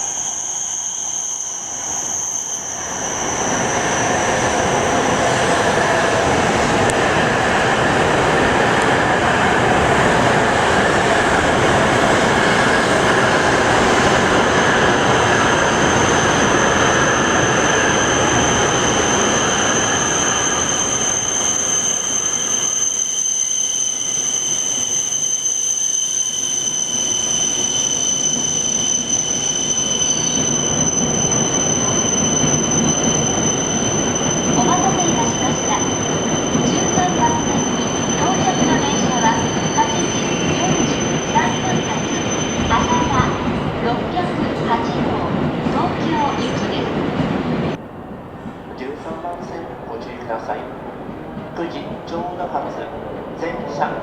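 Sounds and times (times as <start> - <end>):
train rushing and rumbling: 1.6 - 54.0
high-pitched whining tones: 9.1 - 47.0.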